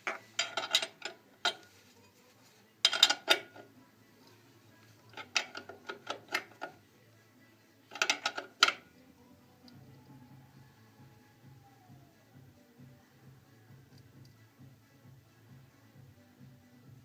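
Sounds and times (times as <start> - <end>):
metallic clicks of mechanical parts: 0.0 - 1.7, 2.8 - 3.7, 5.1 - 6.8, 7.9 - 8.8.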